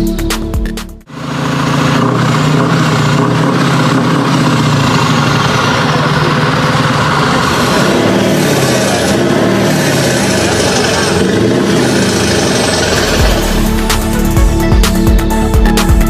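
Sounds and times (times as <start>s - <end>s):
electronic music: 0.0s - 1.1s, 5.0s - 16.0s
truck diesel engine running: 0.0s - 16.0s.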